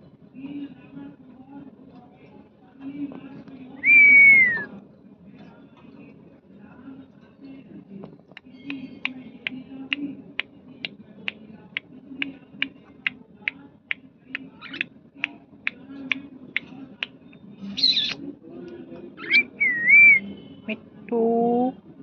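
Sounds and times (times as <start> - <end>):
budgerigar sharp chirps: 17.7 - 18.2
budgerigar warbling calls: 17.7 - 18.2, 19.2 - 20.2.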